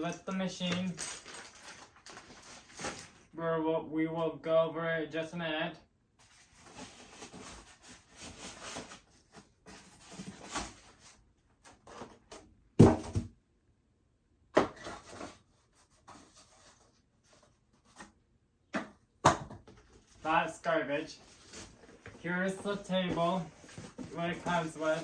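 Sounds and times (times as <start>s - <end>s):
packaging rustling: 0.0s - 3.3s, 21.2s - 25.0s.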